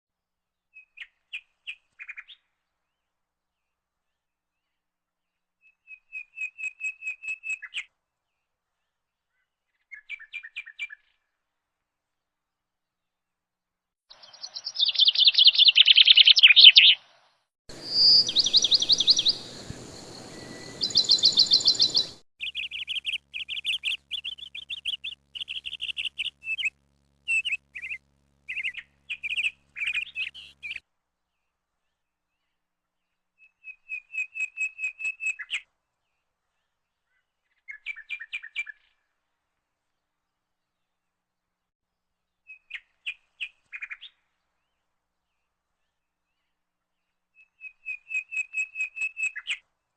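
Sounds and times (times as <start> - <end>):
small birds chirping in trills: 14.1 - 39.1, 42.4 - 49.6.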